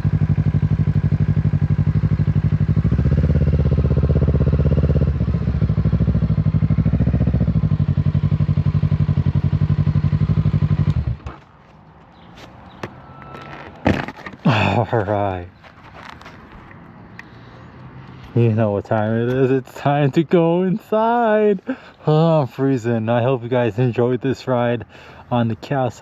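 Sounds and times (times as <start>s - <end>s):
motorcycle engine idling and revving: 0.0s - 15.4s.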